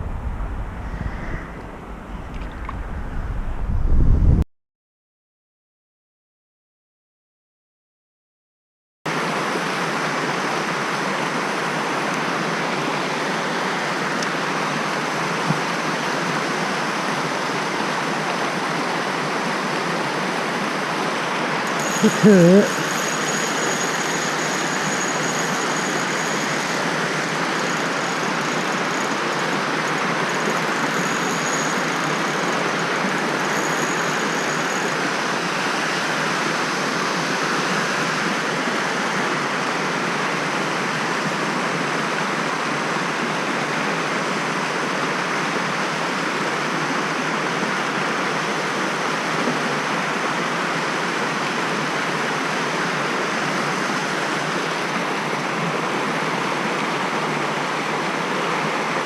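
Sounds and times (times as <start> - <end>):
stream water flowing: 0.0 - 3.2, 9.1 - 59.0
faint high tone: 21.7 - 29.2.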